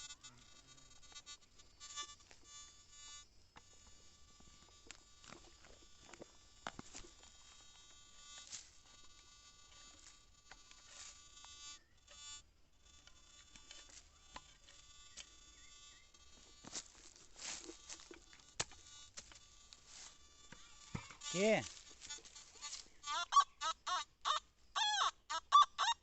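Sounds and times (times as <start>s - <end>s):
metal detector pinpointer buzzing: 0.0s - 26.0s.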